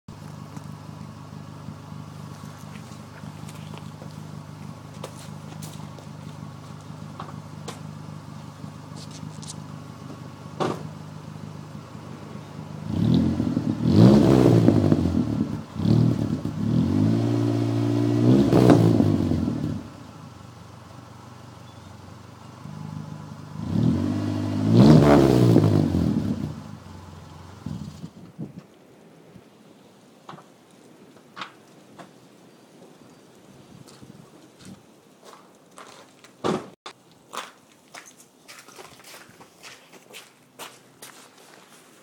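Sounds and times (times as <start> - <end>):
car engine idling and revving: 0.1 - 28.4.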